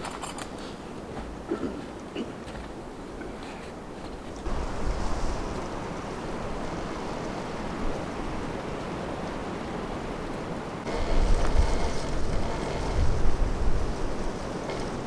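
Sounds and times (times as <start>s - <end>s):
strong wind buffeting microphone: 4.5s - 15.0s.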